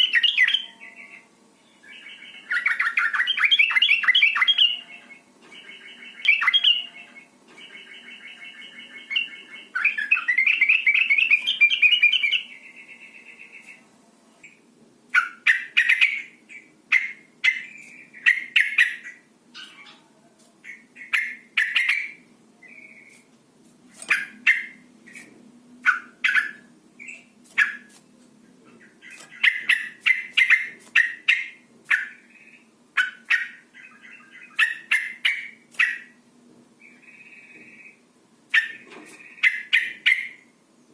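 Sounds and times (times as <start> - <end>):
sharp bird chirps: 15.2 - 20.0, 20.7 - 23.2, 24.0 - 27.9, 28.8 - 36.2, 36.8 - 40.5
bird buzzy chatter: 23.9 - 36.2, 36.8 - 40.5.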